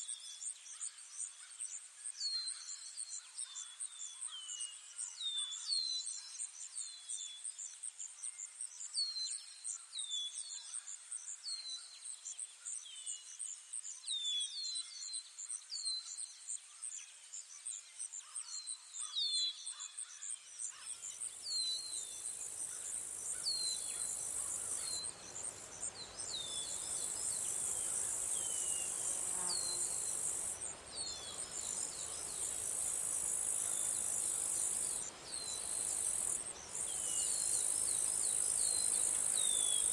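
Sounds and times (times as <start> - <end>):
insects trilling and chirping: 20.0 - 39.9.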